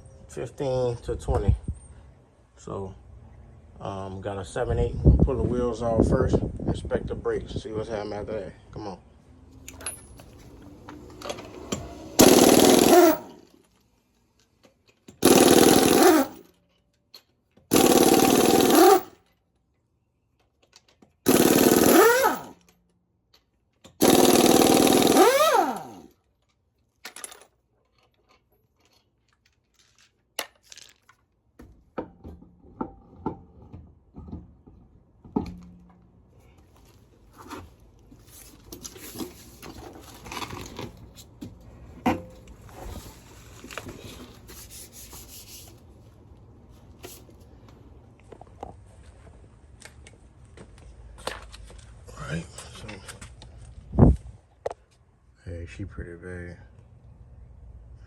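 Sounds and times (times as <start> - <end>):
metal nuts clinking and rattling: 9.6 - 19.3, 20.4 - 31.2
impact wrench bursts: 9.7 - 13.5, 15.1 - 16.5, 17.7 - 19.2, 21.2 - 22.7, 23.9 - 26.1.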